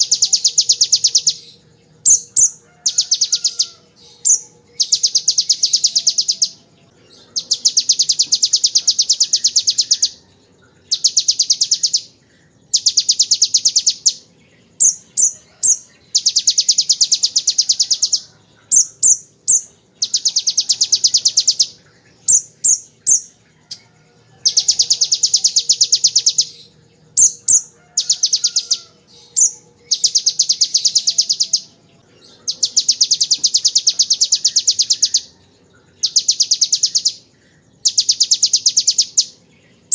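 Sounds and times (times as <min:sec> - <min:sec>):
bird high-pitched rapid trills: 0:00.0 - 0:39.9.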